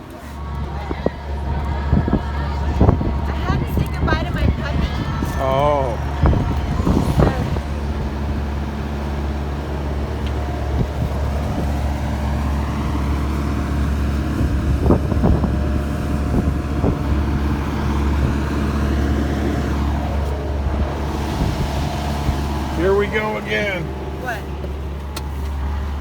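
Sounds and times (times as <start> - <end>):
motor vehicle droning: 0.0 - 26.0.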